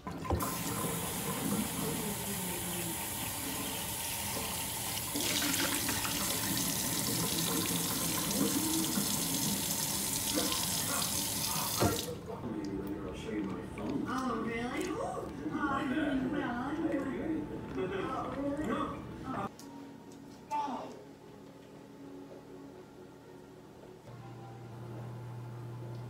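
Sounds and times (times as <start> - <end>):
tap water running into sink: 0.0 - 12.2.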